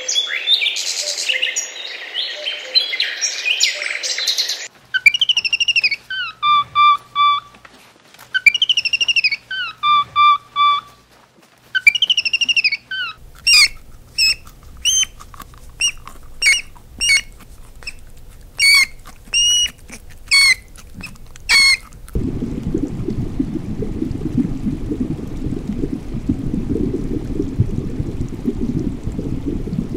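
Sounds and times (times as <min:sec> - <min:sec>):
bird-like chirping: 0:00.0 - 0:07.5, 0:08.4 - 0:11.0, 0:11.8 - 0:15.2, 0:15.8 - 0:18.0, 0:18.6 - 0:21.9
low rush of water: 0:12.8 - 0:29.9.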